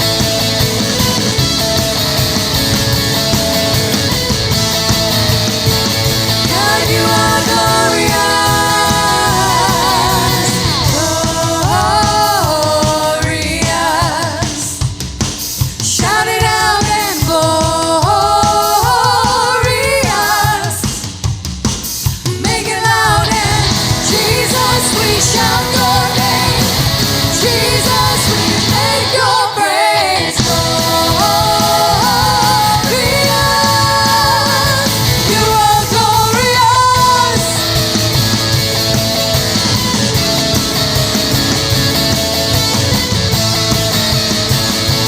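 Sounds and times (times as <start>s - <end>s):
rock band playing: 0.0s - 45.0s
steady drum beat: 0.0s - 45.0s
person singing: 6.4s - 14.9s, 15.8s - 20.9s, 22.3s - 38.0s.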